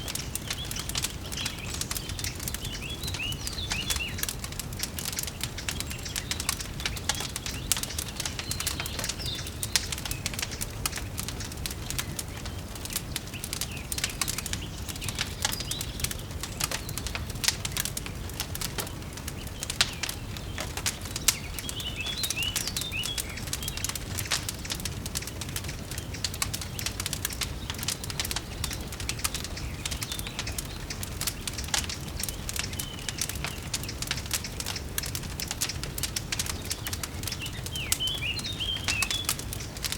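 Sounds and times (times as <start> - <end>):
bird chirps: 0.0 - 12.6, 19.4 - 24.4, 25.9 - 39.9
wood fire crackling: 0.0 - 39.9.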